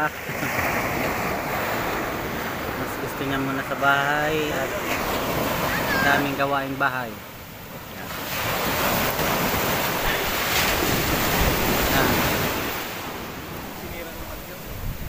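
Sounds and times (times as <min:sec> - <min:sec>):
sea surf washing on beach: 0:00.0 - 0:15.0
wind buffeting microphone: 0:08.3 - 0:15.0.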